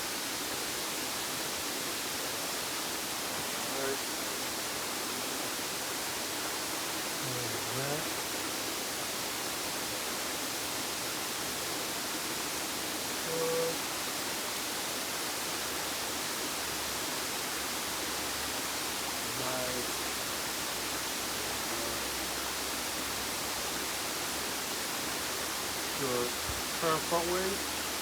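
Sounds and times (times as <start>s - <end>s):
waterfall rushing: 0.0s - 28.0s
faint pitched sounds: 13.2s - 13.9s, 21.4s - 22.2s, 25.9s - 27.7s.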